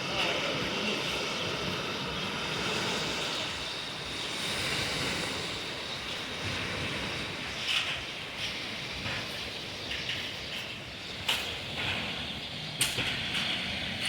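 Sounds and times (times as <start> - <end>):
sea surf washing onto shore: 0.0 - 14.0.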